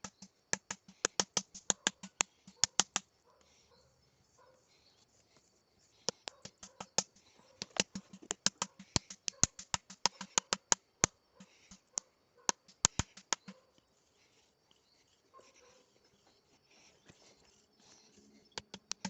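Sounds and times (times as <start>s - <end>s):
rapid sharp taps: 0.0s - 3.1s, 6.1s - 10.8s, 11.4s - 13.6s, 18.6s - 19.0s.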